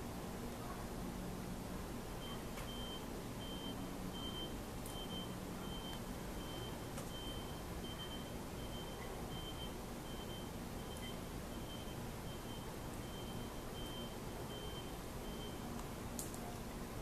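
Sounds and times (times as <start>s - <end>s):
steady background hiss: 0.0s - 17.0s
reversing alarm beeping: 2.2s - 15.7s.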